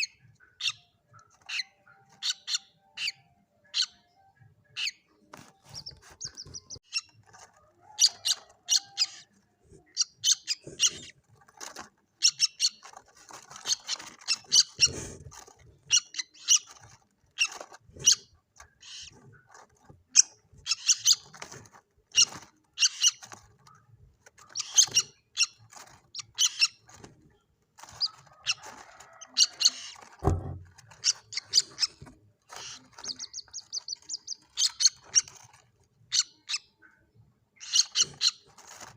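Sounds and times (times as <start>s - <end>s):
chicks peeping and chirping: 0.0s - 38.9s
low thump: 30.2s - 30.8s.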